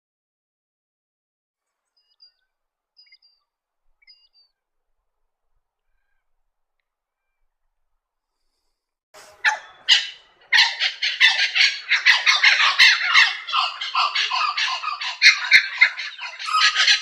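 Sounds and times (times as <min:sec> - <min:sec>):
birds squawking harshly: 0:09.2 - 0:17.0.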